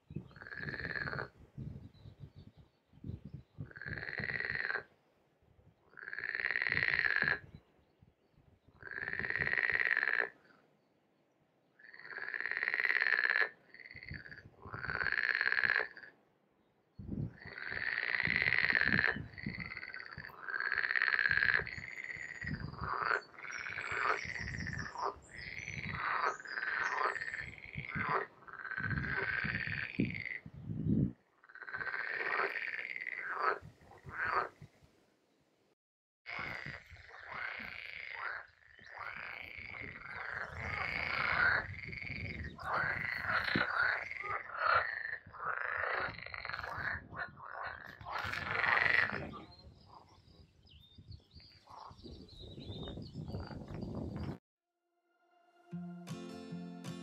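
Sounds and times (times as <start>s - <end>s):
animal croaking calls: 6.0s - 7.4s, 17.4s - 30.4s, 36.3s - 50.1s.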